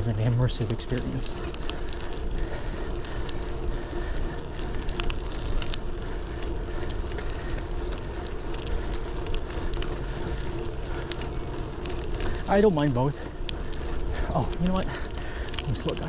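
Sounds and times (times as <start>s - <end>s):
low rumble of tyres and wind: 0.0s - 16.0s
small clicks and rattles: 0.0s - 16.0s.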